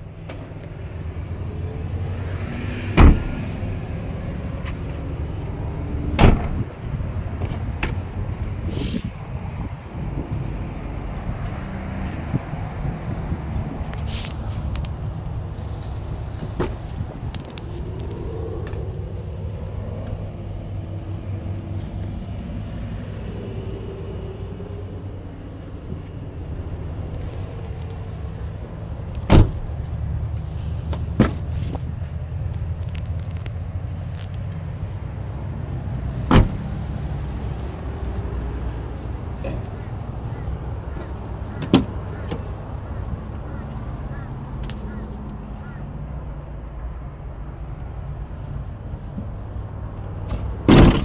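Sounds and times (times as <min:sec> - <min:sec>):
car door shutting: 0:03.0 - 0:03.6, 0:06.2 - 0:06.7, 0:16.4 - 0:16.9, 0:29.2 - 0:29.7, 0:36.2 - 0:36.6, 0:40.3 - 0:42.5, 0:50.3 - 0:51.0
vehicle engine idling: 0:35.0 - 0:45.9.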